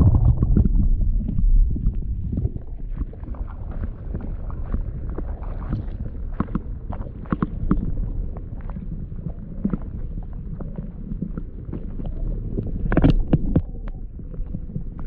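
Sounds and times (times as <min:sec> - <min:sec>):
river water rumble: 0:00.0 - 0:10.0
wind buffeting microphone: 0:00.0 - 0:15.0.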